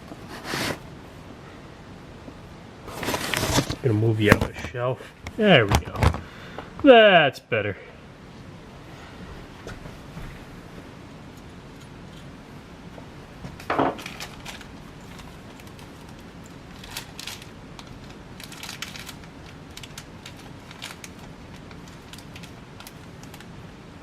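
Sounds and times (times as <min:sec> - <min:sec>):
rustling: 0:02.8 - 0:06.3.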